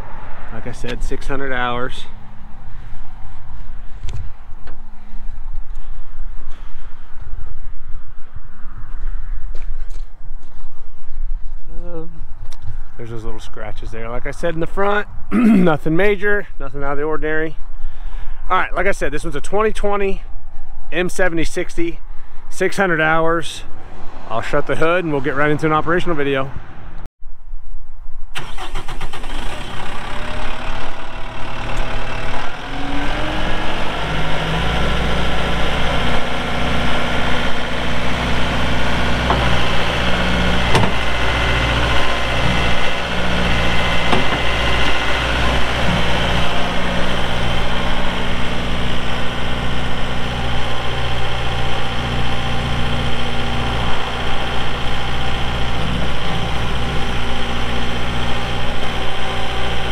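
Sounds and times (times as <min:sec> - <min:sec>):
tractor diesel engine idling: 0:28.4 - 0:59.9.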